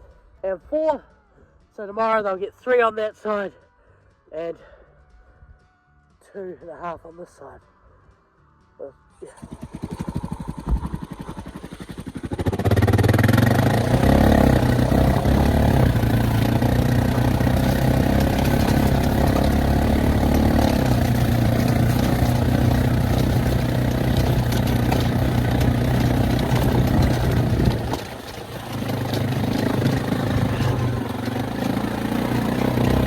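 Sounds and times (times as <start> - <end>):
farm vehicle engine running: 9.2 - 33.0.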